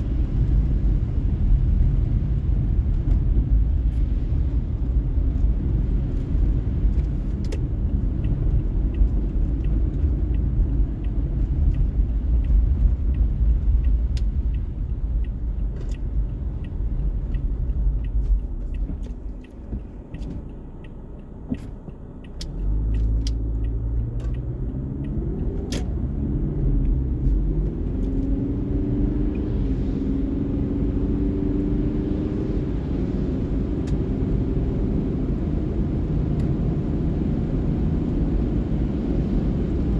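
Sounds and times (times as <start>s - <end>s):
car road and engine rumble: 0.0s - 39.9s
sharp ticks: 7.0s - 26.2s.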